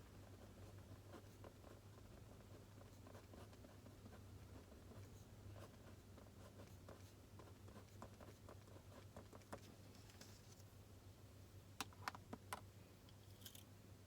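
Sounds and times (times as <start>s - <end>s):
pen scratching on paper: 0.3s - 9.6s.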